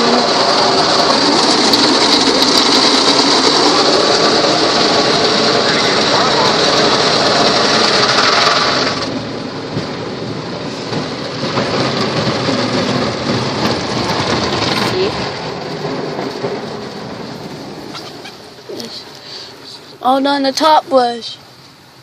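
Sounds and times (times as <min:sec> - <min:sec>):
loud hiss: 0:00.0 - 0:09.4
car wash water spray drumming: 0:00.0 - 0:22.0.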